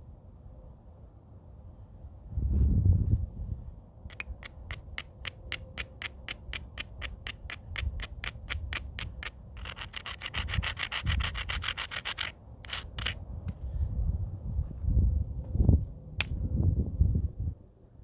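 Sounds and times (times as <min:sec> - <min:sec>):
stone edge scraping: 0:04.1 - 0:13.2.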